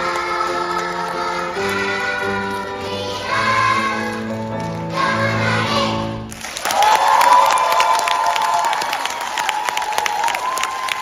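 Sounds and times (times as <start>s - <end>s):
choir singing in harmony: 0.0s - 6.3s
cheering and clapping: 6.3s - 11.0s.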